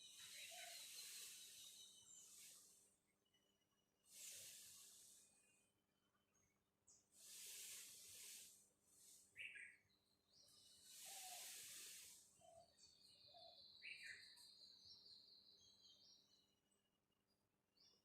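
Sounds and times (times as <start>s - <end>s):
falling bird chirps: 0.0s - 3.0s, 7.0s - 15.0s
rustling hiss: 0.0s - 3.1s, 4.0s - 5.6s, 7.1s - 9.6s, 10.3s - 12.8s.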